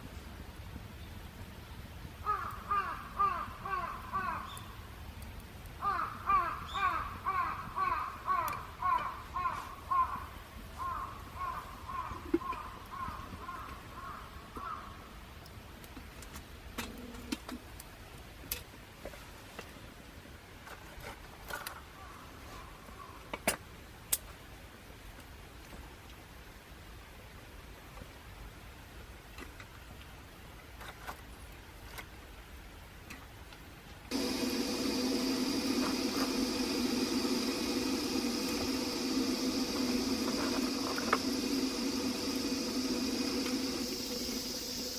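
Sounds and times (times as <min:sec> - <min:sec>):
bird calling: 0:02.3 - 0:04.8, 0:05.8 - 0:14.9.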